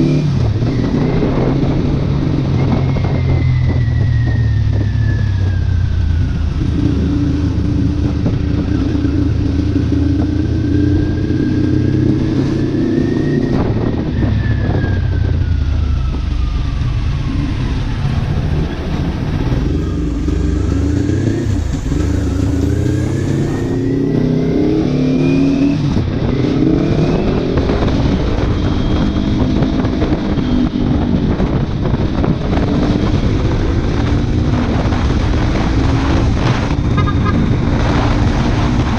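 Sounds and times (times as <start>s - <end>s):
motorcycle engine revving: 0.0s - 38.9s
wind noise on microphone: 0.0s - 38.9s.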